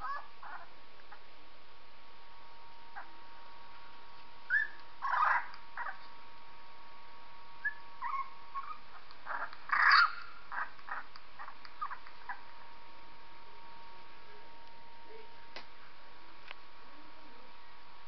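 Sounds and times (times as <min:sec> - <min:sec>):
puppy squeaking and whimpering: 0:00.0 - 0:00.7, 0:04.5 - 0:06.1, 0:07.6 - 0:12.4
faint steady hum: 0:00.0 - 0:18.0.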